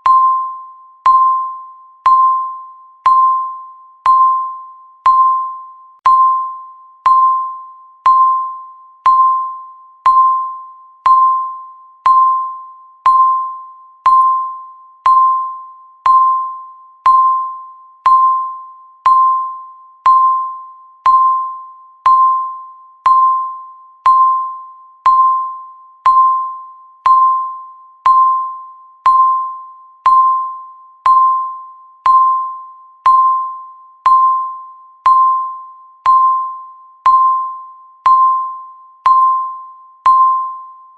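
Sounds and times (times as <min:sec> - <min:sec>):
timer ticking bell-like ping: 0:00.0 - 0:40.9.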